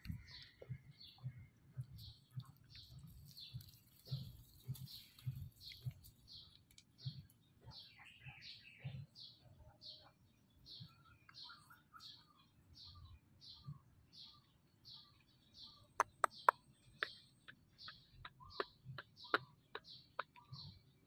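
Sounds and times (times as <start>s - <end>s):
small bird high chirp: 2.0s - 21.0s
other bird calls: 15.7s - 21.0s.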